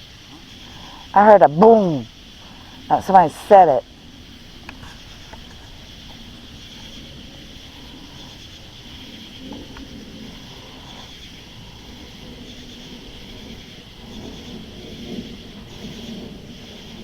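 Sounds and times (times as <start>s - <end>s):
high-pitched insect drone: 0.0s - 17.0s
faint ticks: 4.5s - 13.4s.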